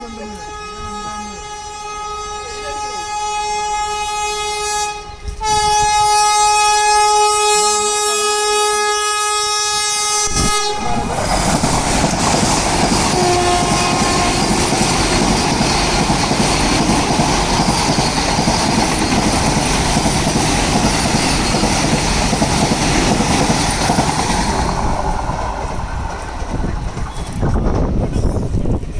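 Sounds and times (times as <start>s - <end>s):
train horn blast: 0.0s - 11.2s, 13.0s - 15.7s
train wheels rumbling on rails: 0.0s - 28.9s.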